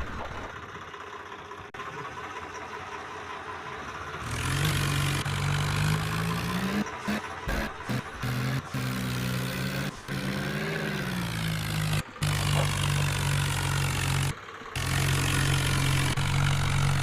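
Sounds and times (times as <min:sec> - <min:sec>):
tractor engine revving: 0:03.9 - 0:17.0.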